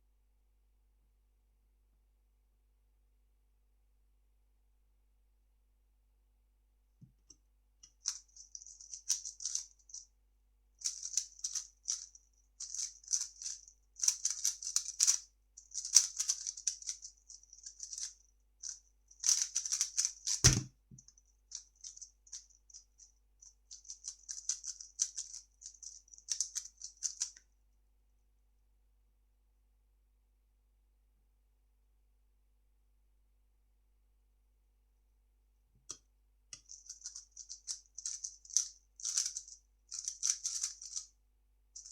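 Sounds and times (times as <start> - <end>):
puzzle cube plastic clicking: 12.7 - 18.1, 36.6 - 41.0
dull thud: 20.4 - 20.7.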